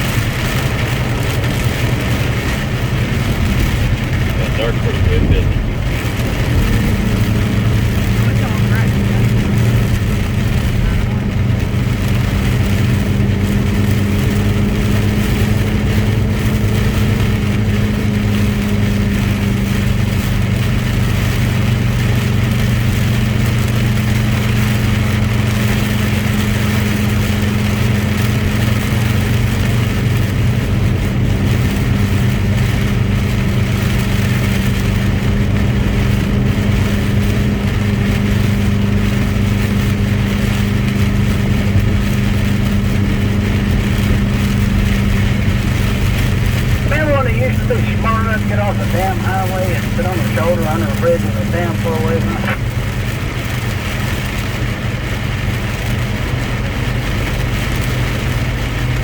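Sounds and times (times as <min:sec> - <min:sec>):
road and tyre noise: 0:00.0 - 0:59.0
truck engine droning: 0:00.0 - 0:59.0.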